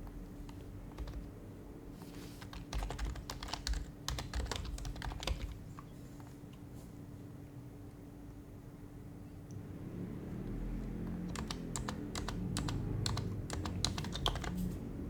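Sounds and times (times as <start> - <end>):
typing on a keyboard: 0.0 - 1.3, 2.4 - 5.9, 11.0 - 14.7.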